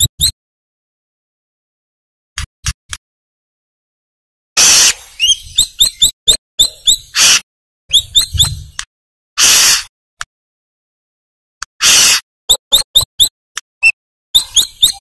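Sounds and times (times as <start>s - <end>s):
bird high sharp chirps: 0.0s - 0.3s, 4.6s - 8.8s, 11.8s - 15.0s
bird harsh rasping notes: 4.6s - 8.7s, 9.4s - 9.9s, 11.8s - 15.0s.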